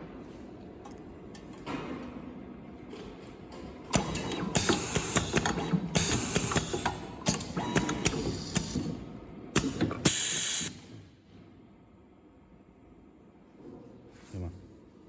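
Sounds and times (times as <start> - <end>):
machine clicks and clatter: 3.0 - 10.4.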